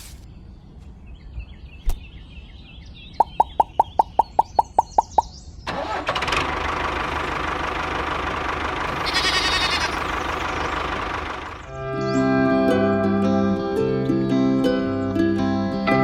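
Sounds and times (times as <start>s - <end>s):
engine starting and running: 5.7s - 11.7s.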